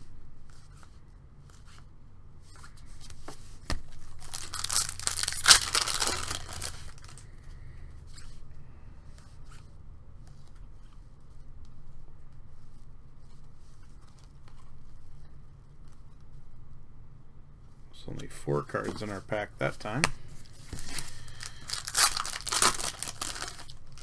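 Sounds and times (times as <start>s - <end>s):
cards clicking and rustling: 3.0s - 7.3s, 18.7s - 24.0s
foil pack tearing: 3.9s - 7.2s, 20.4s - 24.0s.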